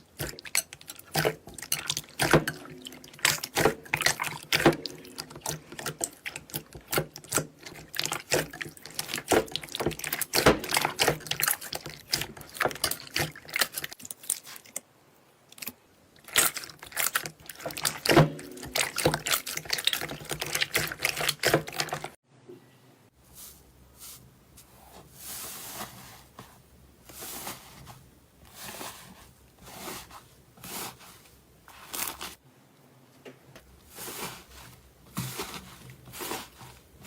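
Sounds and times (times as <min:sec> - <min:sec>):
slime squishing with wet pops: 0:00.0 - 0:14.8.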